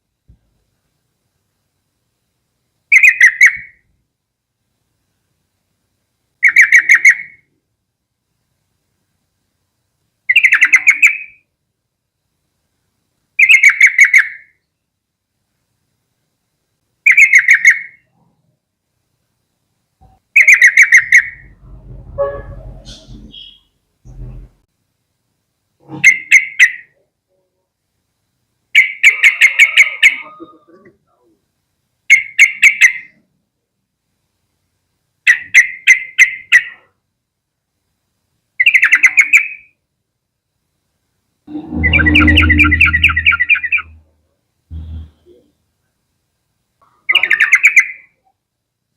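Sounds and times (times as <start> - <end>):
bird singing bubbling phrases: 10.3 - 11.4, 41.5 - 44.0, 47.1 - 48.1
bird calling sharp notes: 20.4 - 24.4, 41.5 - 44.0
bird chattering run: 41.8 - 44.0
faint low steady tone: 44.7 - 45.5.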